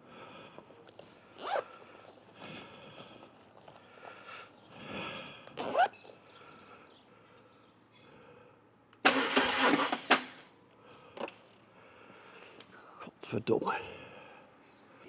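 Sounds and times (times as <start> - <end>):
motorcycle starter cranking: 9.0 - 10.5
starter click: 9.0 - 10.5.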